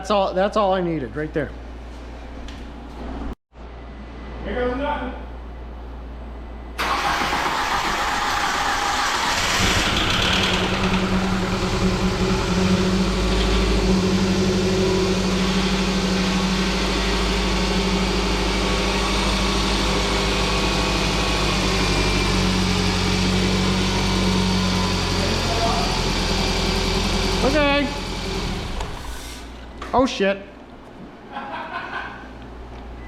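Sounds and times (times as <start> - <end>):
car engine idling: 6.8 - 29.0.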